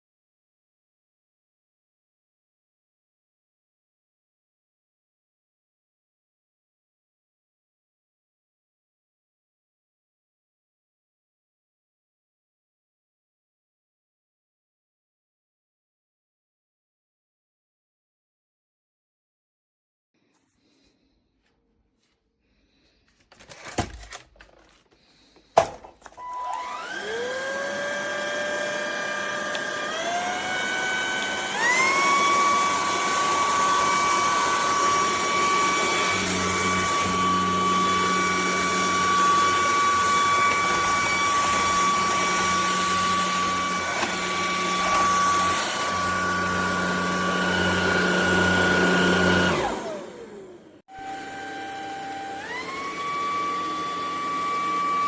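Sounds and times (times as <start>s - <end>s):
vacuum motor whining: 23.4s - 55.0s.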